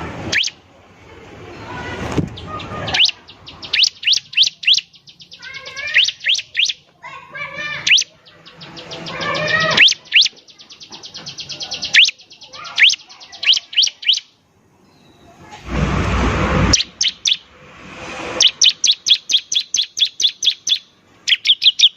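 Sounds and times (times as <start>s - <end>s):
bird singing trills and whistles: 0.3s - 0.6s, 2.4s - 6.8s, 7.6s - 15.3s, 16.7s - 17.5s, 18.4s - 21.9s.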